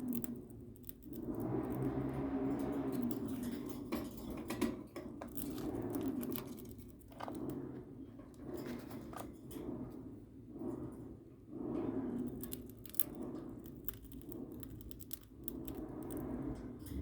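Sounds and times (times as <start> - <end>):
birds crunching cornflakes: 12.3 - 16.2.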